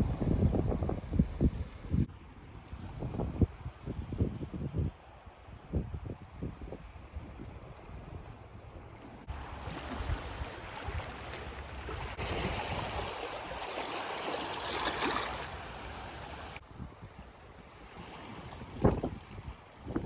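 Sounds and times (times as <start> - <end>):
wind buffeting microphone: 0.0 - 20.0
waves washing on shore: 9.2 - 16.6, 17.4 - 20.0.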